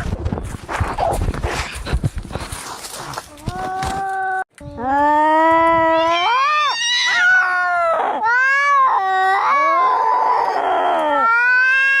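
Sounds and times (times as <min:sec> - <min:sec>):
cats yowling: 0:05.2 - 0:12.0.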